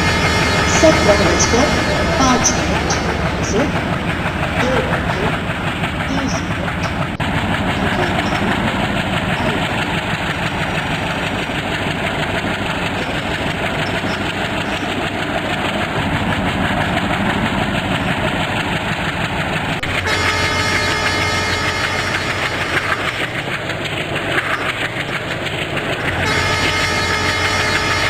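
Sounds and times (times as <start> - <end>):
train horn: 0.0 - 16.0, 19.8 - 23.6, 26.0 - 28.0
train rumbling past: 0.0 - 28.0.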